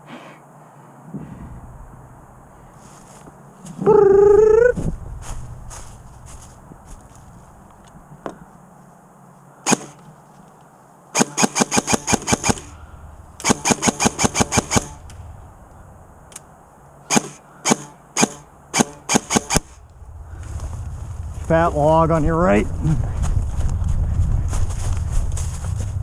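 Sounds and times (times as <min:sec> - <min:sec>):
airsoft gun firing: 0:09.7 - 0:10.0, 0:11.2 - 0:12.8, 0:13.4 - 0:15.1, 0:17.1 - 0:19.8.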